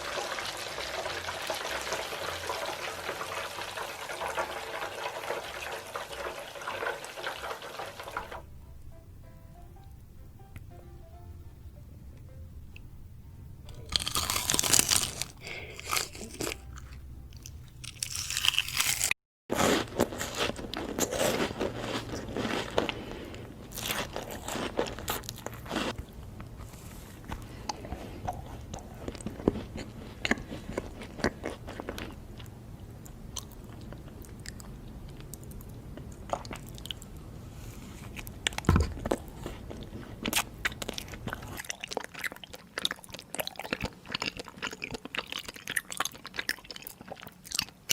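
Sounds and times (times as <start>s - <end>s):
crunchy bites and chewing: 13.7s - 23.1s, 23.7s - 26.0s.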